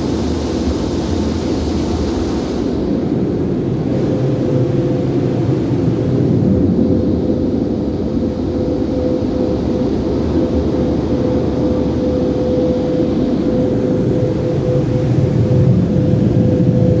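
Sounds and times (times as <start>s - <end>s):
car wash equipment rumbling: 0.0s - 6.8s
constant hum: 0.0s - 17.0s.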